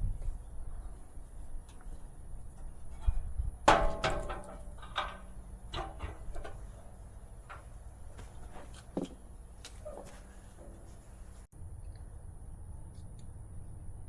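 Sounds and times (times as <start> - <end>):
metal tools knocking and clicking: 3.0 - 7.9
sharp metallic clank: 3.0 - 7.9.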